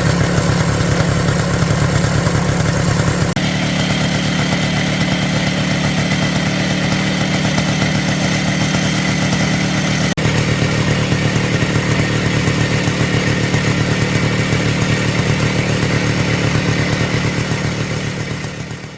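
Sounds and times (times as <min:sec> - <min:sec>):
two-stroke motorcycle engine running: 0:00.0 - 0:18.9.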